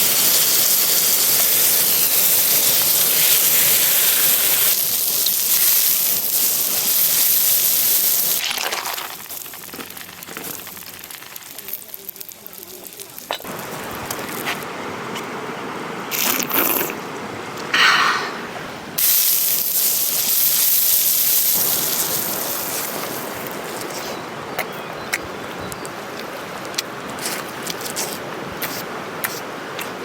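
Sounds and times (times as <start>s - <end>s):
cooking hiss: 0.0s - 15.2s, 17.7s - 24.8s
clicks and crackles: 1.2s - 14.6s.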